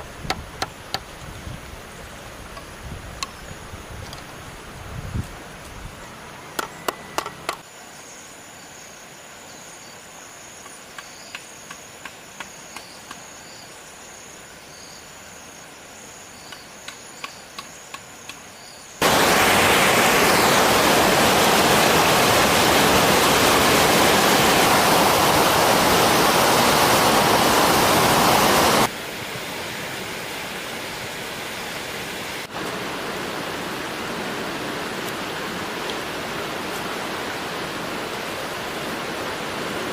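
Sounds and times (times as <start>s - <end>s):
rushing water: 19.0s - 39.9s.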